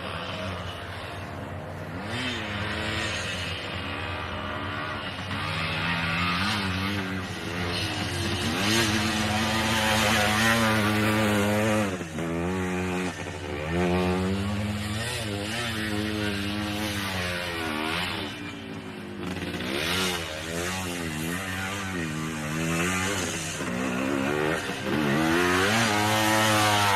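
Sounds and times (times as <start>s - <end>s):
dirt bike engine revving: 0.0s - 26.9s.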